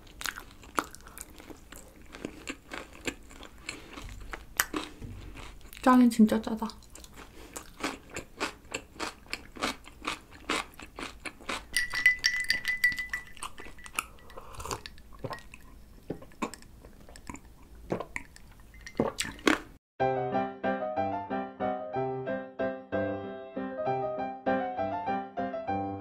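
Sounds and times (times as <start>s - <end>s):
crunchy chewing: 0.0s - 5.9s, 6.7s - 11.8s, 12.9s - 19.8s
ice clinking against glass: 11.7s - 15.6s, 18.7s - 19.4s
sipping drink: 11.8s - 19.7s.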